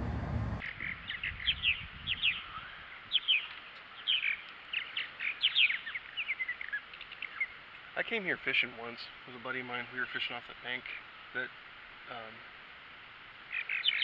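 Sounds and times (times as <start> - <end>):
low rumble: 0.0 - 0.6
songbirds chirping: 0.0 - 14.0.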